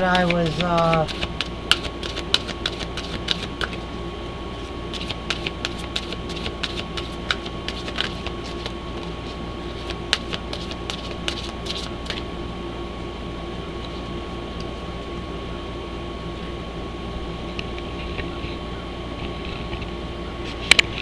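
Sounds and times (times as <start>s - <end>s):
cards being shuffled: 0.0s - 3.8s, 4.6s - 12.3s
steady hum: 0.0s - 21.0s.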